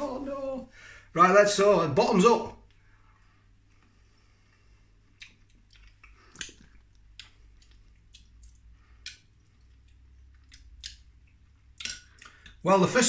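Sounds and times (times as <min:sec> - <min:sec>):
wet chewing mouth sounds: 0:04.5 - 0:12.6
mouth clicks: 0:05.1 - 0:12.6.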